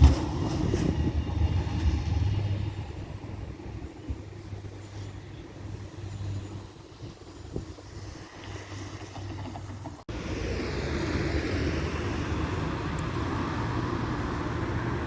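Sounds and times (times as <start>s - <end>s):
tram humming: 0.0s - 15.0s
tram passing close: 0.0s - 15.0s.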